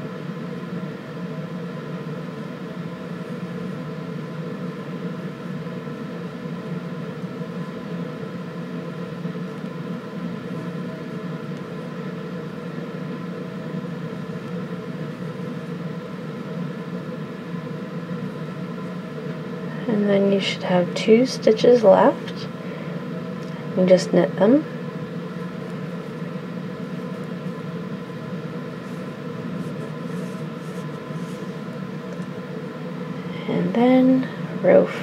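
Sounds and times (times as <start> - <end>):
machine hum with steady tones: 0.0 - 35.0.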